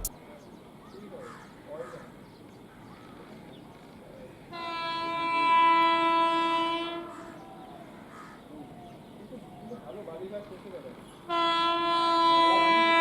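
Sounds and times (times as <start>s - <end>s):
train horn blast: 4.5s - 7.3s, 11.2s - 13.0s.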